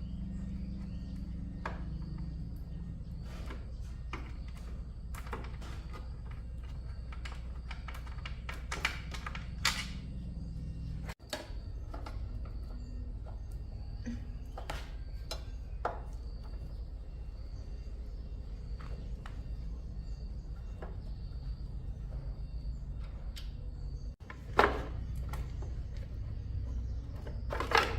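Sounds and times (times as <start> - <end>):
steady low hum: 0.0 - 27.9
tools and metal parts clicking: 1.2 - 13.7.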